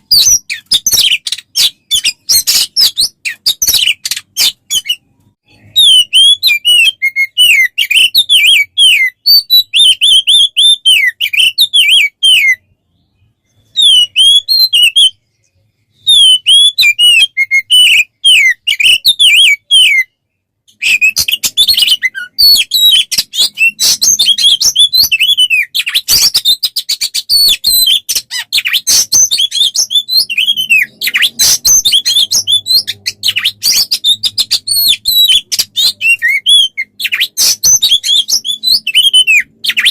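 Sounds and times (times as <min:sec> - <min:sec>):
songbird rapid chattering song: 0:00.0 - 0:20.0.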